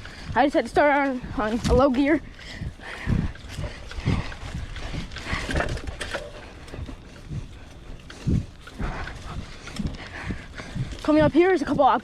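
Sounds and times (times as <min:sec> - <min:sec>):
person breathing hard: 0:00.0 - 0:00.4, 0:02.2 - 0:11.1
low thumps and rustling: 0:00.0 - 0:12.0.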